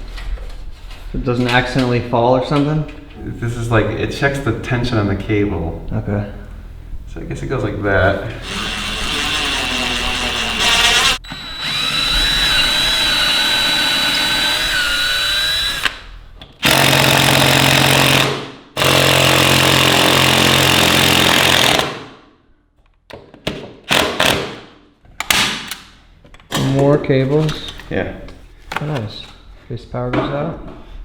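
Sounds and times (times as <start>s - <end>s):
power drill running: 8.4s - 22.0s.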